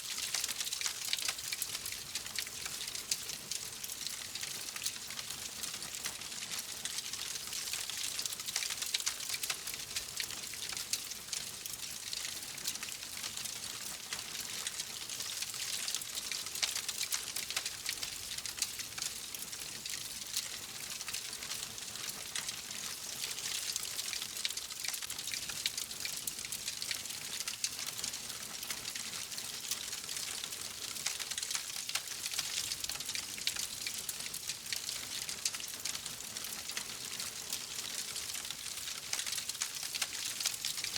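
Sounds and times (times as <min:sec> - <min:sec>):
wood fire crackling: 0:20.1 - 0:40.9.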